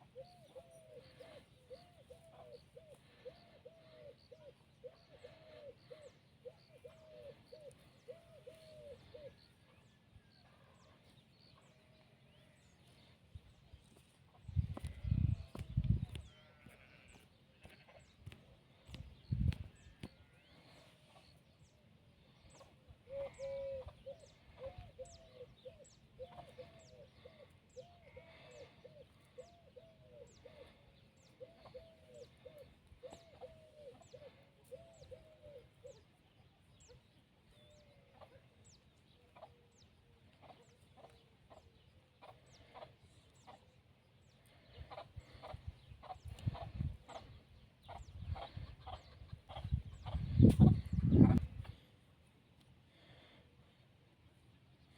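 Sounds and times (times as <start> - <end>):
chickens clucking: 26.0 - 27.6, 38.1 - 38.6, 39.3 - 52.6.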